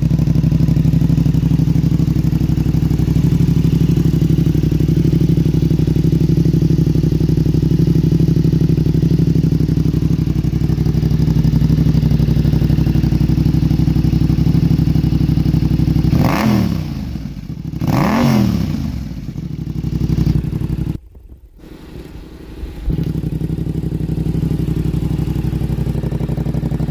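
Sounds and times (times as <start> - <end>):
motorcycle engine revving: 0.0 - 21.0, 22.0 - 26.9
motorcycle engine idling: 0.0 - 26.9.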